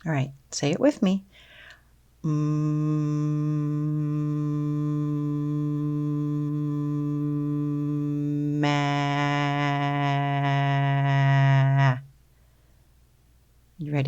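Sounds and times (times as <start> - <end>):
person humming then saying ah: 2.2 - 12.1.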